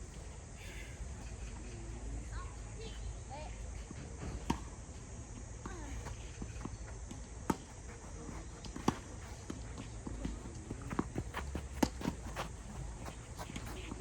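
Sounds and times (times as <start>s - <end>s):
faint distant voices: 0.5s - 14.0s
footsteps on court: 5.6s - 14.0s
tennis ball impacts: 6.4s - 14.0s.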